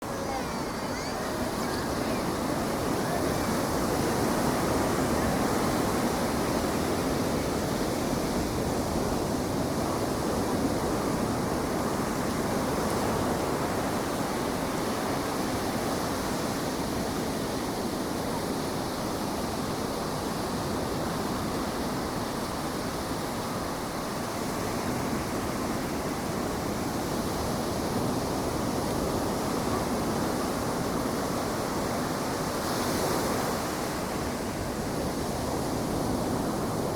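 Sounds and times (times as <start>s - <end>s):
ocean waves breaking: 0.0s - 9.2s.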